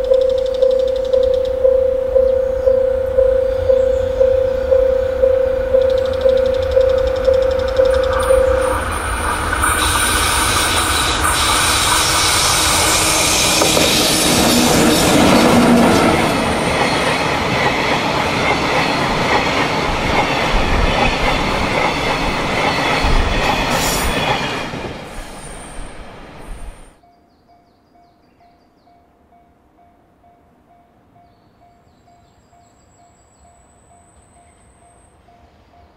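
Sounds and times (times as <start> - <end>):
high wheel squeal: 5.6 - 17.8, 18.5 - 27.0
train wheels rumbling and clattering: 5.6 - 27.0.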